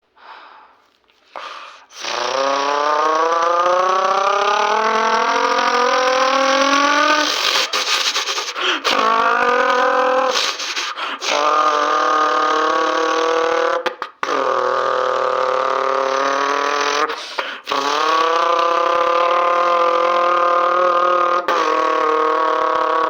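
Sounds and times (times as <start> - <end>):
mouth hisses: 1.3 - 3.2, 7.0 - 9.2, 10.2 - 11.8
person imitating car engine: 1.4 - 23.0.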